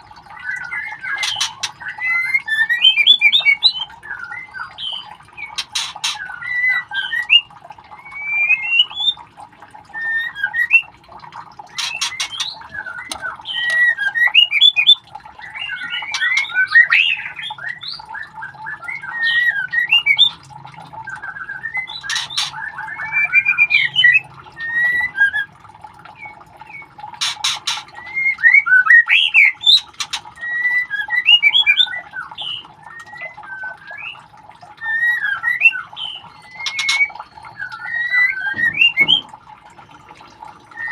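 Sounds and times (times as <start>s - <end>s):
bird chick squawking and chirping: 0.8s - 2.4s, 5.0s - 7.0s, 11.7s - 18.1s, 21.8s - 23.0s, 27.1s - 30.9s, 36.0s - 39.3s.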